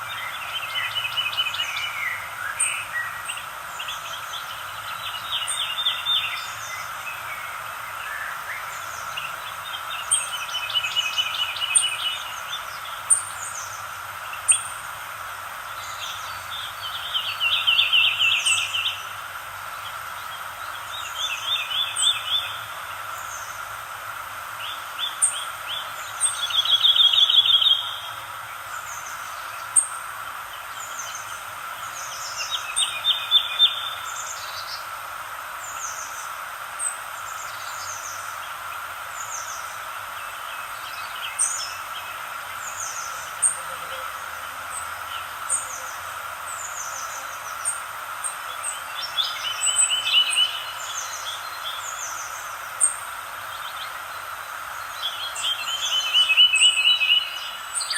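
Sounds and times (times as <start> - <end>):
background hiss: 0.0 - 57.9
songbirds trilling: 0.0 - 57.9.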